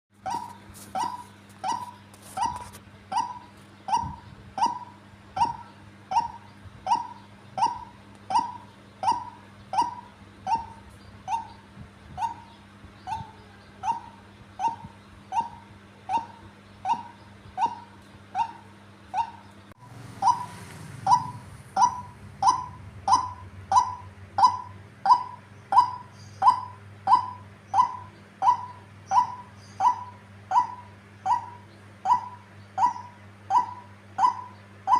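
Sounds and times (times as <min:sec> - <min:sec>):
waterhen harsh calls: 0:20.2 - 0:34.9.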